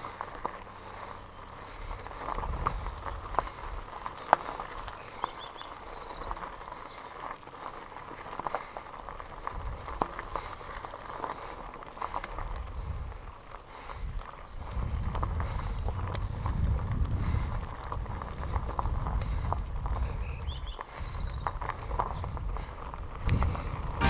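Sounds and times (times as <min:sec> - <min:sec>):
wind rumbling on microphone: 0:00.9 - 0:07.0, 0:09.3 - 0:10.6, 0:12.3 - 0:24.0
bike rattling over rocks: 0:01.9 - 0:13.2.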